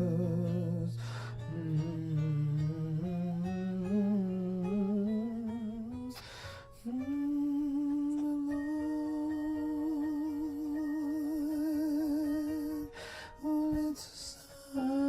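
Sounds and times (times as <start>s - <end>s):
person singing wordless melody: 0.0s - 15.0s
soft instrumental backing: 0.0s - 15.0s
person breathing in: 1.0s - 1.5s, 6.2s - 6.8s, 12.9s - 13.4s.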